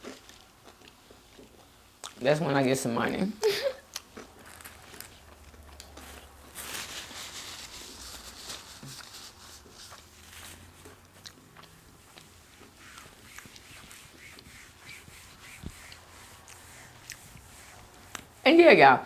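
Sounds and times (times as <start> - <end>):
person chewing food: 0.0 - 2.2, 3.8 - 6.6, 9.0 - 18.3.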